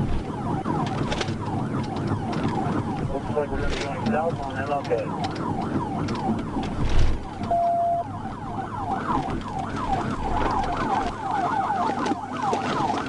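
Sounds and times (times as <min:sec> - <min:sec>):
police siren yelping: 0:00.0 - 0:13.0
vehicle noise: 0:00.0 - 0:13.0
short steady beep: 0:07.5 - 0:08.1.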